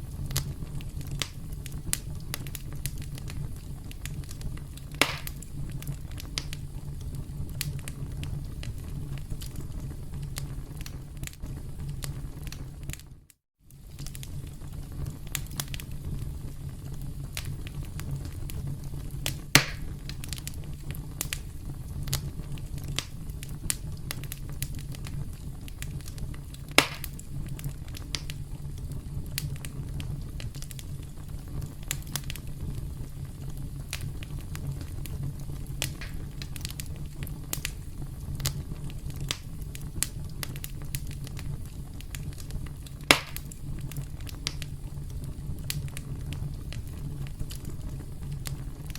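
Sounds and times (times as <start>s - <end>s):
wood fire crackling: 0.0s - 48.9s
burning wood pops: 0.1s - 13.0s, 13.7s - 48.9s.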